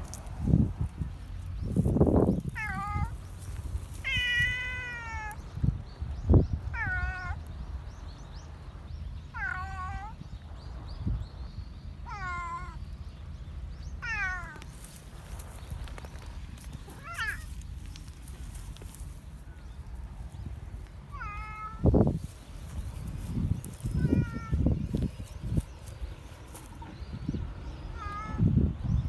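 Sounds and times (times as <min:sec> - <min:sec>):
cat meowing: 0:02.6 - 0:03.2, 0:04.0 - 0:05.4, 0:06.7 - 0:07.4, 0:09.4 - 0:10.2, 0:12.1 - 0:12.8, 0:14.0 - 0:14.7, 0:17.0 - 0:17.5, 0:21.1 - 0:21.9, 0:23.9 - 0:25.1, 0:27.9 - 0:28.5.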